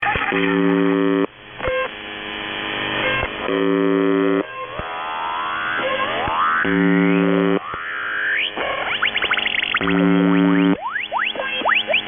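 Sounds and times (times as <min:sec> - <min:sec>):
radio buzz tones: 0:00.0 - 0:12.0
radio static hiss: 0:00.0 - 0:12.0
wavering radio whistles: 0:04.6 - 0:12.0.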